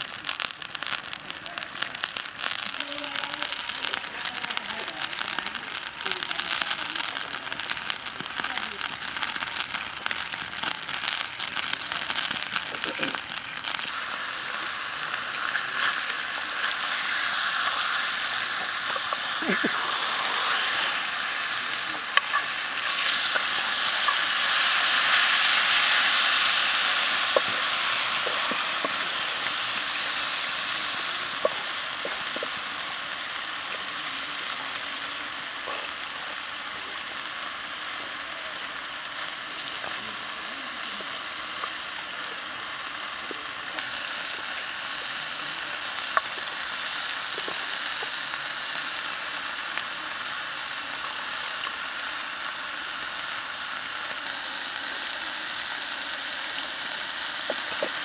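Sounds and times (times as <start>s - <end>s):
oil popping: 0.0s - 33.9s, 57.4s - 58.0s
meat and vegetables sizzling in oil: 0.0s - 58.0s.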